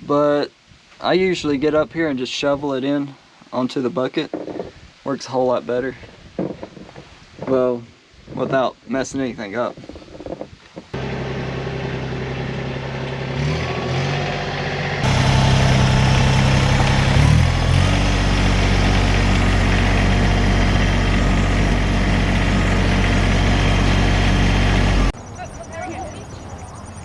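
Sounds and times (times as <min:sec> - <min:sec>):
tractor diesel engine running: 0:11.0 - 0:27.0.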